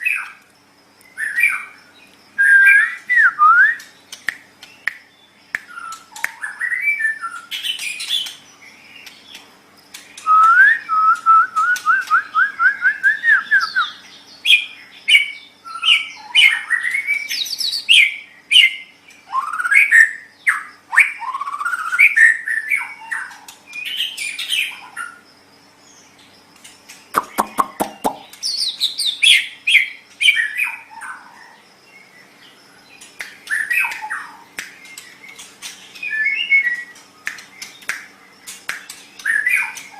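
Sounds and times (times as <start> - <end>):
faint steady hum: 0.0 - 39.9
bird singing whistled phrases: 2.4 - 3.9, 5.6 - 8.3, 10.2 - 24.7, 33.5 - 35.0, 36.0 - 37.4.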